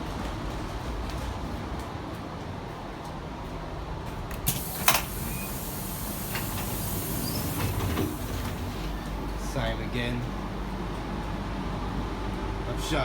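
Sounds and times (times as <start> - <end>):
train carriage rumble: 0.0 - 13.0
hiss: 4.5 - 8.9.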